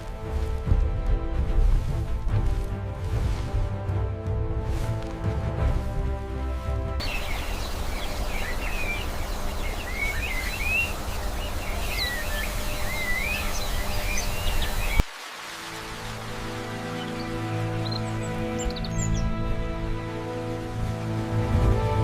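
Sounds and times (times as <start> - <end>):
soft music: 0.0 - 22.0
outdoor ambience hiss: 6.3 - 19.2
small birds chirping: 7.0 - 15.1, 16.2 - 19.8.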